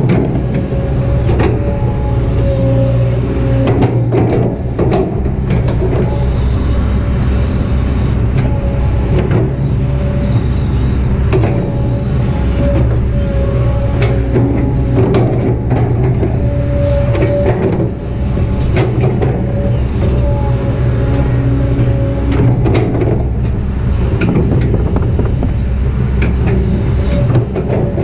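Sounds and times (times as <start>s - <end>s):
excavator diesel engine running: 0.0s - 28.0s
hydraulic hiss: 6.2s - 8.4s, 10.4s - 11.2s.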